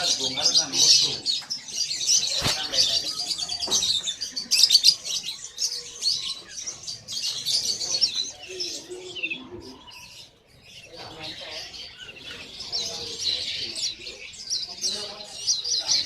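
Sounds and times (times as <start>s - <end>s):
caged birds chirping: 0.0s - 16.0s.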